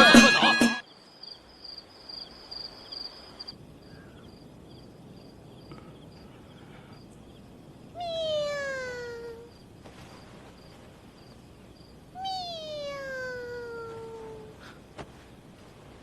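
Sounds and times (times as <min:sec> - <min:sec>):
crickets chirping: 0:00.0 - 0:16.0
cat meowing: 0:08.0 - 0:09.5, 0:12.2 - 0:14.5.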